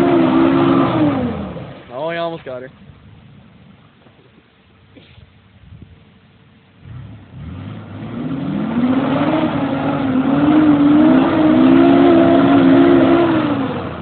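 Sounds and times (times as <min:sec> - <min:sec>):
truck engine revving: 0:00.0 - 0:01.8, 0:06.8 - 0:14.0.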